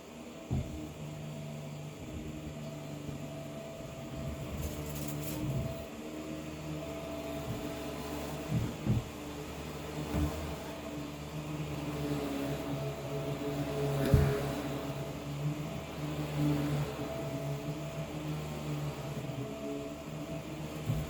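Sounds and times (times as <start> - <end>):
muffled vacuum cleaner: 0.0 - 21.0
dull thumps: 0.4 - 1.0, 7.3 - 9.4.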